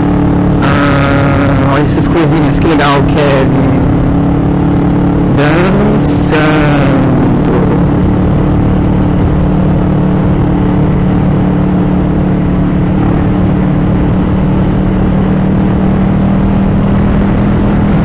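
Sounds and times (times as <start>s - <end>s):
motorcycle engine cruising: 0.0s - 18.0s
wind rumble on microphone: 7.4s - 18.0s.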